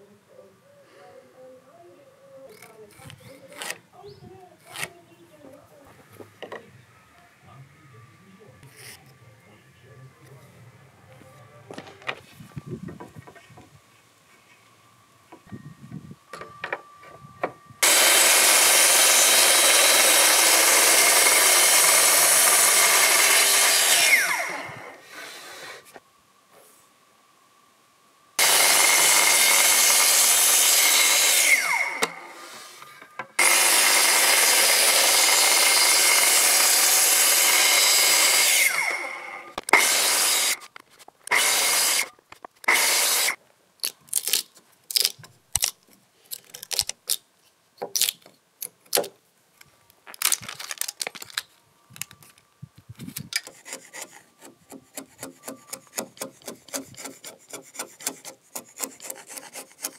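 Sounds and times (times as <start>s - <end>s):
track saw cutting wood: 17.8s - 25.0s, 28.4s - 40.6s, 41.3s - 43.4s, 53.4s - 59.9s
chisel scraping wood: 53.4s - 59.9s.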